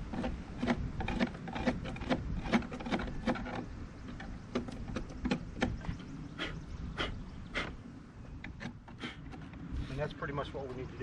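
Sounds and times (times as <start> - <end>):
hand scraper scraping wood: 0.0 - 5.8.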